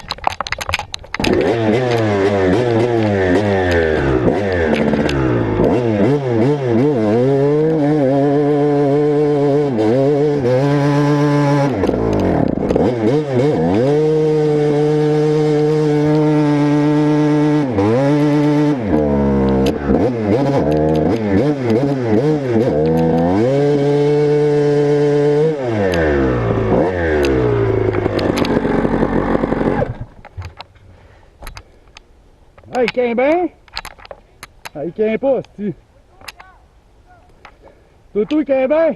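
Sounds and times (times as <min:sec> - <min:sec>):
motocross bike engine revving: 0:01.2 - 0:30.2.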